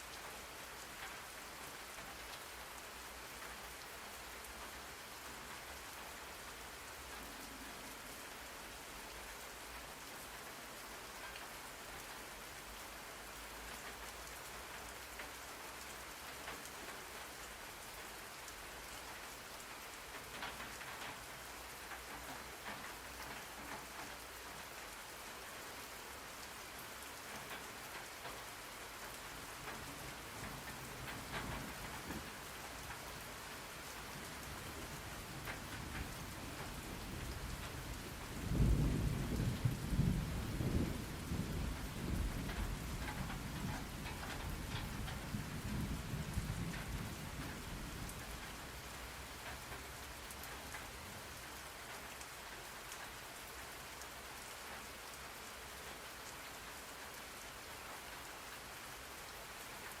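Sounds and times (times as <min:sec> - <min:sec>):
steady rain: 0:00.0 - 1:00.0
thunder rumbling: 0:37.1 - 0:48.0.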